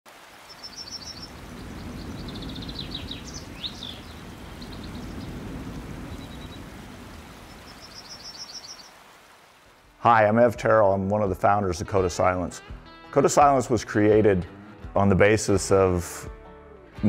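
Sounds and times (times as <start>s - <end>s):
small birds trilling: 0.3s - 9.1s.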